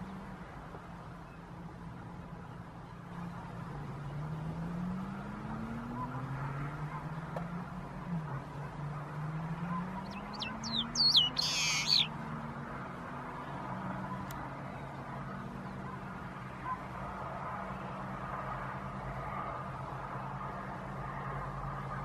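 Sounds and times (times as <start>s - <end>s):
bird calling: 10.0s - 12.1s.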